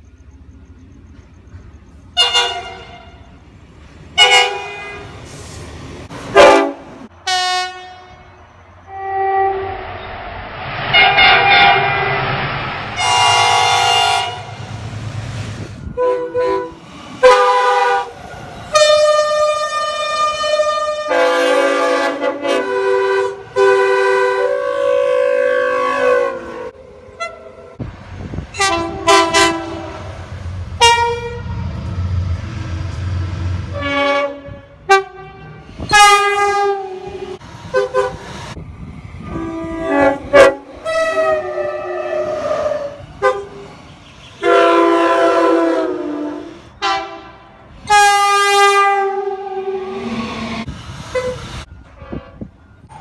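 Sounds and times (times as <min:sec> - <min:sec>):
train horn blasts: 0:02.2 - 0:03.3, 0:04.2 - 0:05.2, 0:06.3 - 0:10.0, 0:10.9 - 0:12.4, 0:13.0 - 0:14.7, 0:15.9 - 0:27.8, 0:28.5 - 0:30.2, 0:30.8 - 0:31.7, 0:33.7 - 0:38.2, 0:39.2 - 0:50.5, 0:51.1 - 0:52.8
rushing noise: 0:09.6 - 0:16.0, 0:26.7 - 0:36.0.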